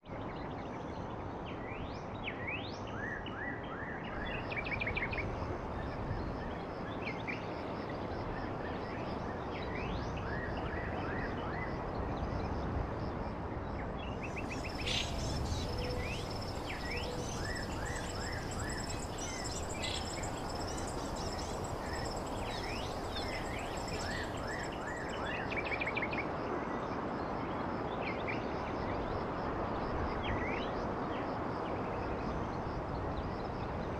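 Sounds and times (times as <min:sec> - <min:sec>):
outdoor background noise: 0:00.0 - 0:33.9
small birds chirping: 0:14.2 - 0:25.4.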